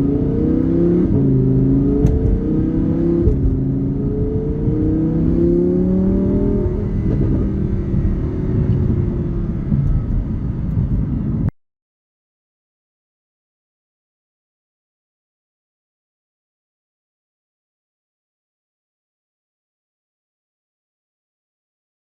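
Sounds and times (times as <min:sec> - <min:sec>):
sports car accelerating: 0:00.0 - 0:11.5.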